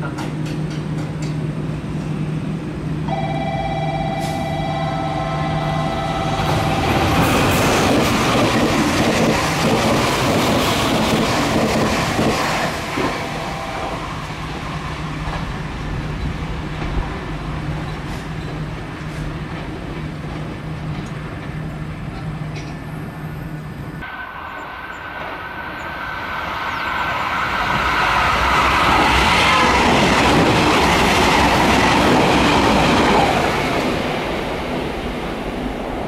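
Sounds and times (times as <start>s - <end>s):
train passing: 0.0s - 36.0s
steady high tones: 3.1s - 7.8s.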